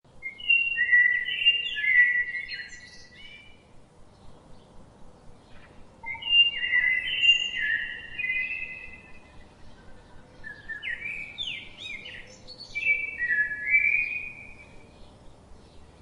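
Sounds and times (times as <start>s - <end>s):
songbird singing: 0.1s - 16.0s.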